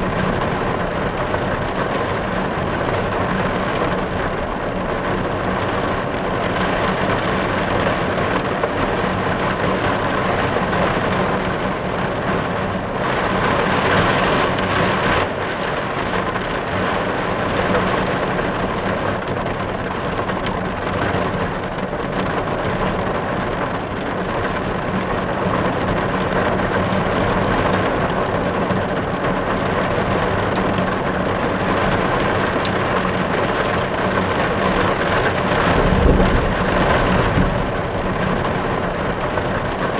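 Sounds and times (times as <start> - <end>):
rain on car roof: 0.0 - 39.9.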